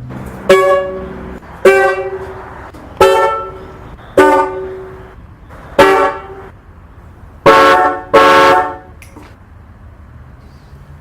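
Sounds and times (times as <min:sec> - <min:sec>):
car horns honking a chord: 0:00.4 - 0:02.4, 0:03.0 - 0:06.5, 0:07.4 - 0:09.0.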